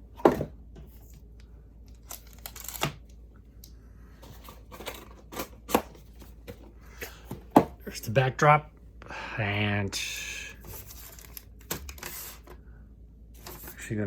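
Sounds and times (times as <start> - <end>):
card pack wrappers crinkling: 1.9 - 3.0.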